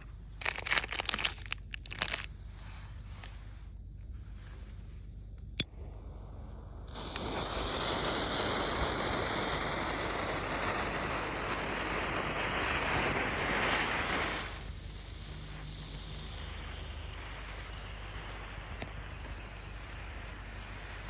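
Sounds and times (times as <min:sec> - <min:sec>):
smoke firework hissing: 0:05.6 - 0:21.0.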